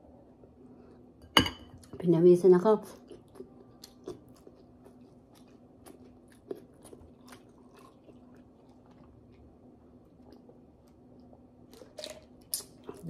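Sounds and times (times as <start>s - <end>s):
faint steady hum: 0.0s - 13.0s
person chewing food: 3.0s - 13.0s.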